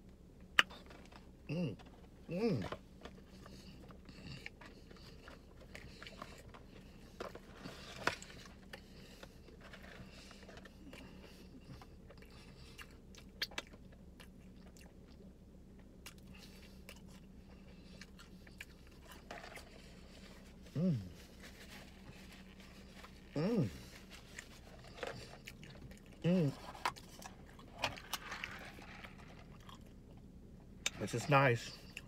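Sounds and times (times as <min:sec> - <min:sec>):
steady low hum: 0:00.0 - 0:32.0
person chewing food: 0:00.4 - 0:31.0.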